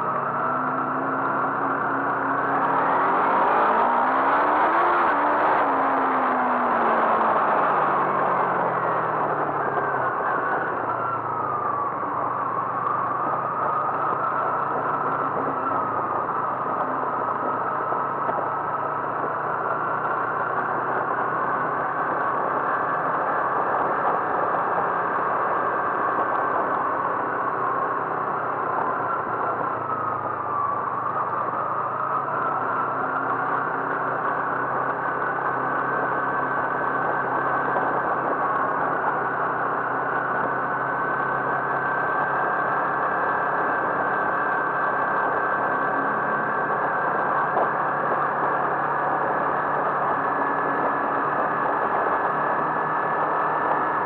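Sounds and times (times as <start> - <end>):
car engine running: 0.0 - 54.0
road noise: 0.0 - 54.0
steady whine: 0.0 - 54.0.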